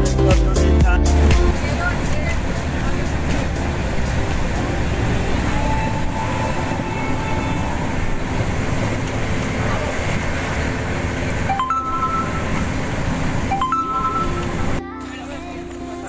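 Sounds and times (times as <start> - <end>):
train wheels rumbling: 0.0 - 14.8
rising two-note tone: 4.5 - 9.6, 11.3 - 15.6.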